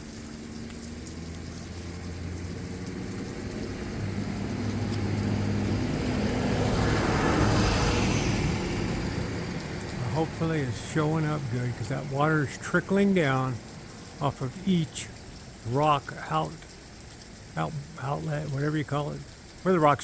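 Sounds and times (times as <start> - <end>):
motor vehicle passing by: 0.2 - 12.3.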